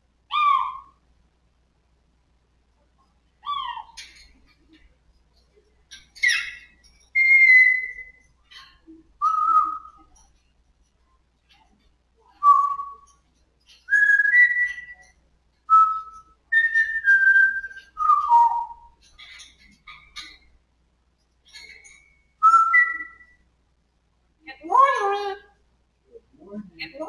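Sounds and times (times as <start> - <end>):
harsh parrot call: 0.3 - 1.0.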